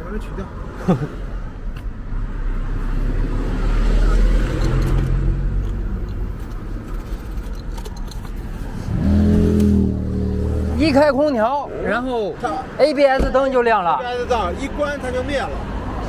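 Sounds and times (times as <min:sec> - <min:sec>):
vehicle rumble with road noise: 0:00.0 - 0:16.0
steady engine hum: 0:04.5 - 0:12.8.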